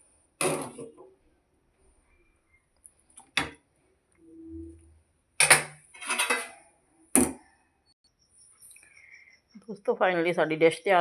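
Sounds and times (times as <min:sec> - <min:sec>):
spoon clinking and scraping a pan: 0:05.4 - 0:06.7.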